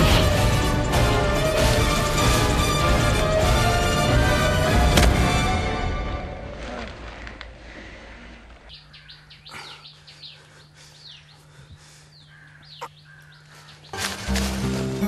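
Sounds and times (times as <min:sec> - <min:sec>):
background music: 0:00.0 - 0:07.2, 0:14.0 - 0:15.0
small birds chirping: 0:07.2 - 0:14.5.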